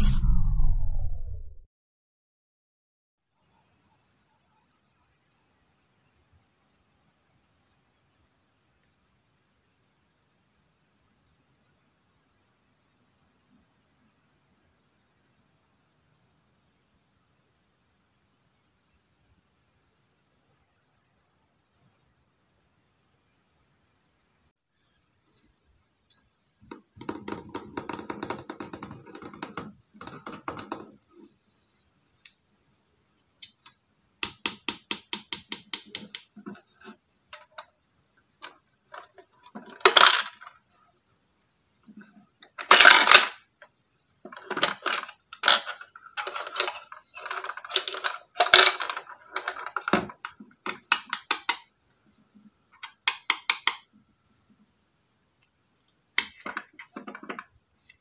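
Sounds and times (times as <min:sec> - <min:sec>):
rapid plastic clicking: 0:33.4 - 0:37.7.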